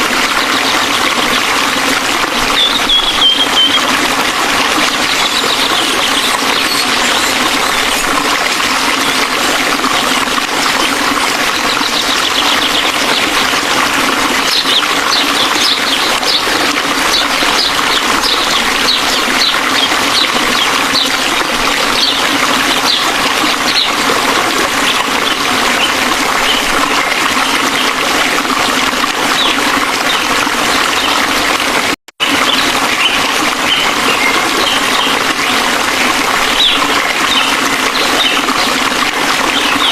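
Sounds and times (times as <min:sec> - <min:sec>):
waterfall rushing: 0:00.0 - 0:29.5.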